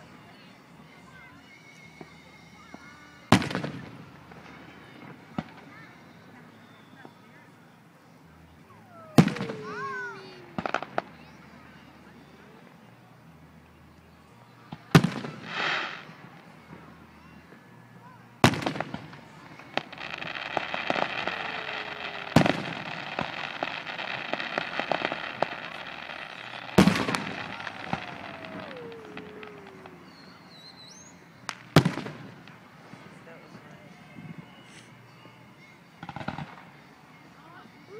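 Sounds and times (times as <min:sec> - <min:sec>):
fireworks crackling: 0:02.0 - 0:06.4, 0:08.7 - 0:11.8, 0:14.8 - 0:17.1, 0:18.4 - 0:33.7
fireworks booming: 0:08.9 - 0:11.2, 0:18.4 - 0:33.0.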